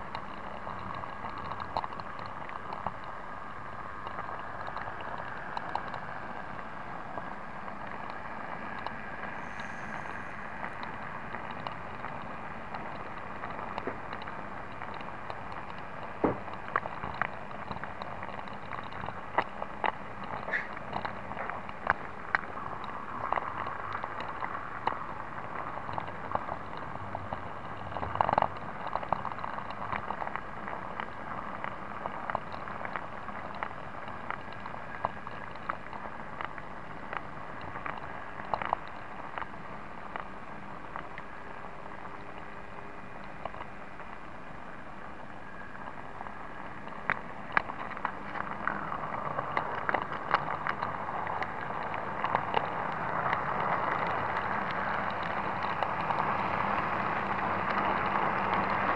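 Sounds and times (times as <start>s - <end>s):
wheels clicking on rails: 0.0s - 58.9s
model train running whir: 4.2s - 13.7s.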